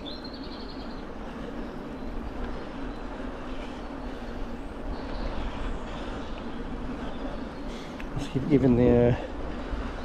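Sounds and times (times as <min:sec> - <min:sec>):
bike tyres rumbling on trail: 0:00.0 - 0:10.0.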